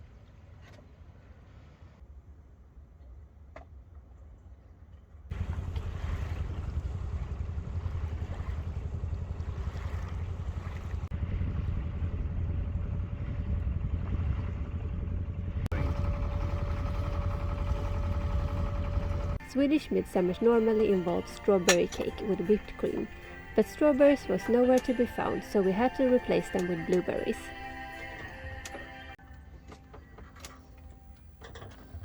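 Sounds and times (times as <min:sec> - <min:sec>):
low rumble and rushing water: 0:00.0 - 0:19.4.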